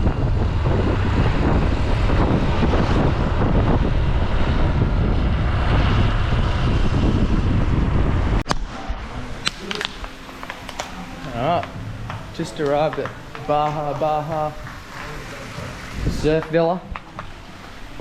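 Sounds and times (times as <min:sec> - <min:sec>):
moving vehicle noise: 0:00.0 - 0:18.0
wind buffeting microphone: 0:00.0 - 0:18.0.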